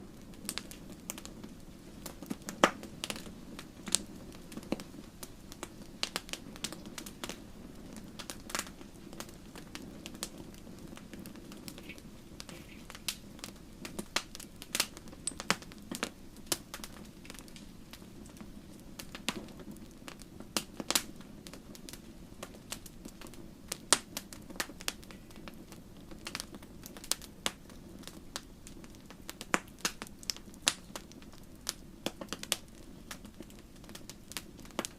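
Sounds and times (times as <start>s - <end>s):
low hiss of flames: 0.0s - 34.9s
wood fire crackling: 0.0s - 34.9s
sharp pops and snaps: 2.2s - 3.3s, 9.6s - 18.0s, 28.4s - 34.9s.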